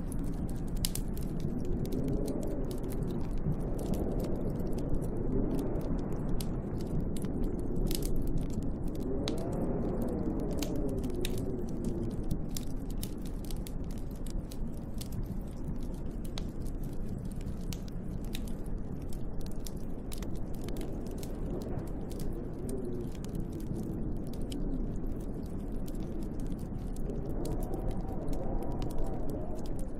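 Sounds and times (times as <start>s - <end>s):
storm wind rumble: 0.0s - 29.9s
wood fire crackling: 0.0s - 29.9s
wind gust howling: 0.1s - 13.0s, 20.1s - 29.9s.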